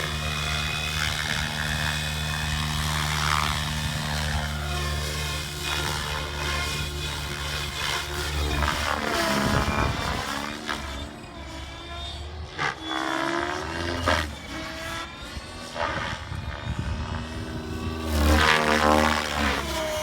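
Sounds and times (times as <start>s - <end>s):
wind rumbling on microphone: 0.0s - 10.5s, 15.4s - 20.0s
helicopter rotor and motor whine: 0.0s - 20.0s.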